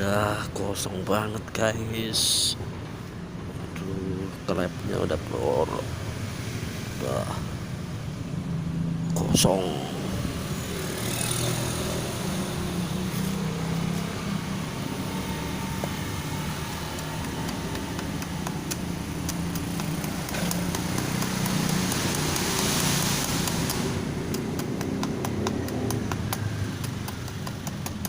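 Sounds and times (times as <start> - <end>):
motor engine humming: 10.8 - 28.0.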